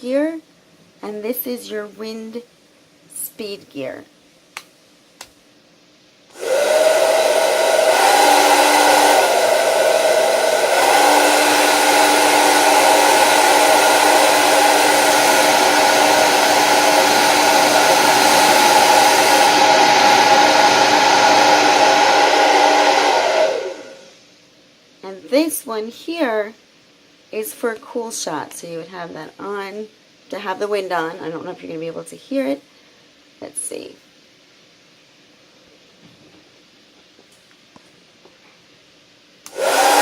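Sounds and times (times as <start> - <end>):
hair dryer running: 6.3 - 24.2, 39.4 - 40.0.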